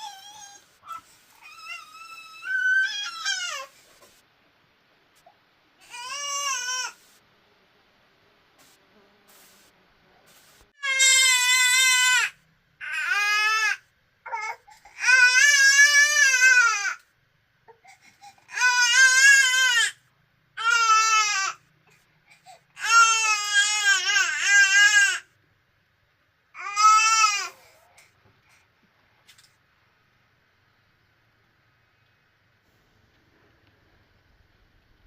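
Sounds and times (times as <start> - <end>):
child crying: 0.0 - 3.7.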